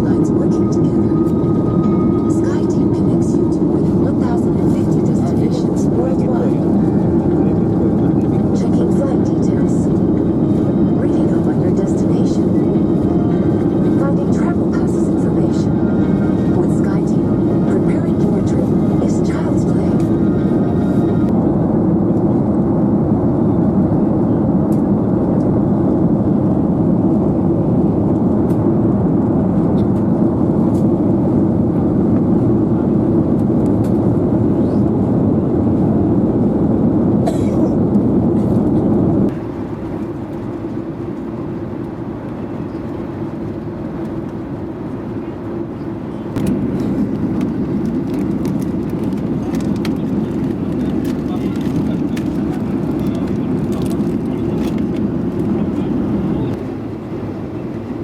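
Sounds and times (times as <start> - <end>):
airliner cabin engine noise: 0.0 - 58.0.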